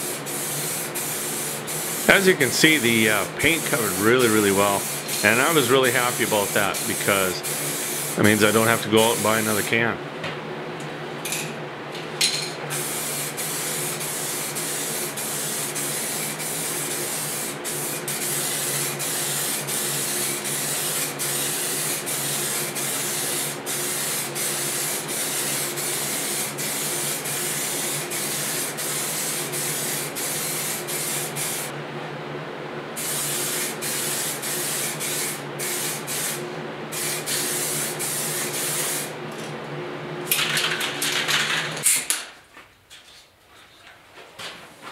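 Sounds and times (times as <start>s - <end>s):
paint spray hiss: 0.0s - 9.6s, 12.8s - 31.7s, 33.0s - 39.1s.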